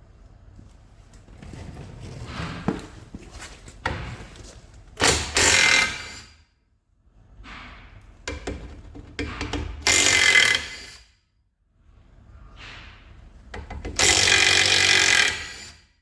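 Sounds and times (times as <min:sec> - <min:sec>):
power tool undoing bolts: 0:05.0 - 0:06.2, 0:09.2 - 0:11.0, 0:13.7 - 0:15.7.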